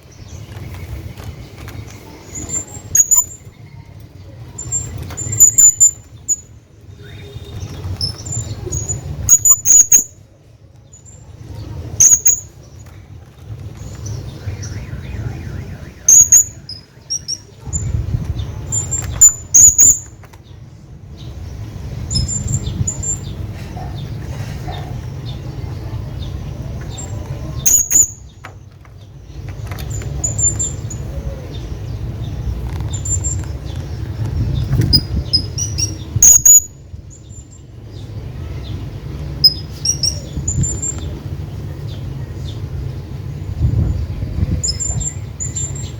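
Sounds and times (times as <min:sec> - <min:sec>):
parrot chirping calls: 0:02.3 - 0:03.6, 0:04.6 - 0:10.2, 0:12.0 - 0:12.6, 0:16.0 - 0:20.1, 0:26.9 - 0:28.2, 0:34.0 - 0:36.8, 0:39.4 - 0:41.0
steady low rumble: 0:10.4 - 0:28.4, 0:29.0 - 0:45.9.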